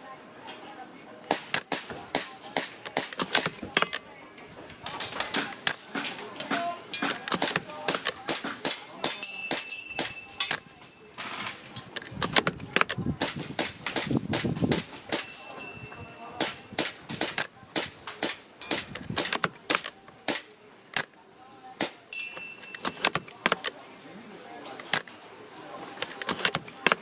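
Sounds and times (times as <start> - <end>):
airsoft guns firing: 1.3 - 3.6, 13.2 - 15.3, 16.4 - 20.5
wind rumbling on microphone: 12.1 - 15.0.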